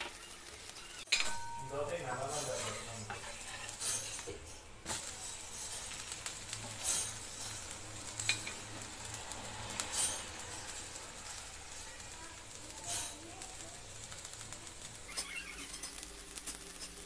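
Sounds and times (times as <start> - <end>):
dosa sizzling in oil: 0.0 - 17.0
metal spatula scraping pan: 2.0 - 11.0.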